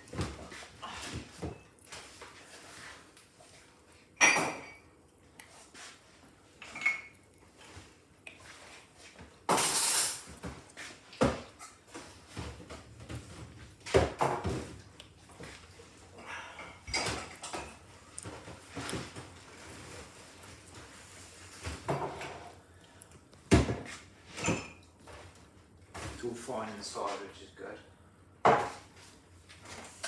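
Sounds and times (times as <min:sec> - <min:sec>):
crockery and cutlery clinking: 0:06.6 - 0:07.2, 0:09.5 - 0:10.3.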